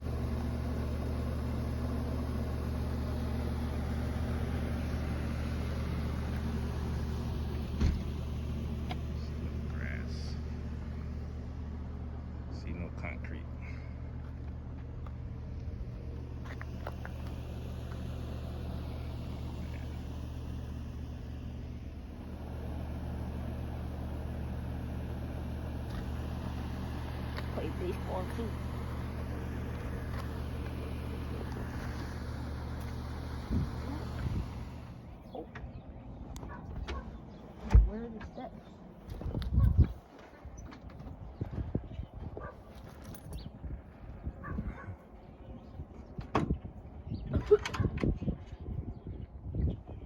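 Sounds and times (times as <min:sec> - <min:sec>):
engine idling: 0:00.0 - 0:50.0
low mechanical hum: 0:00.0 - 0:50.0
short thump: 0:07.8 - 0:08.2.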